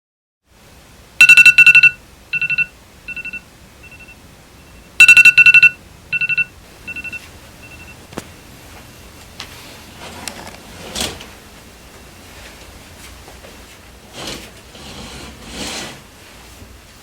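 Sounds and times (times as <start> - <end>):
electronic ringing tone: 1.2 - 8.0.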